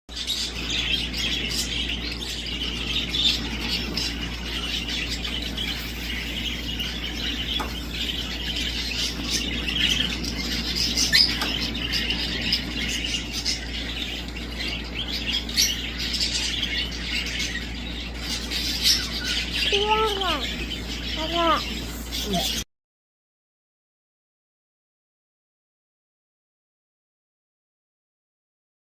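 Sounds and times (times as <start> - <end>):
steady low hum: 0.1 - 22.6
birds chattering and squawking: 0.1 - 22.7.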